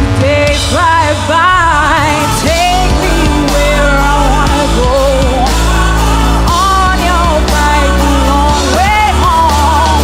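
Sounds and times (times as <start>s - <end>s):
person singing lead vocal: 0.0s - 10.0s
synth bass: 0.0s - 10.0s.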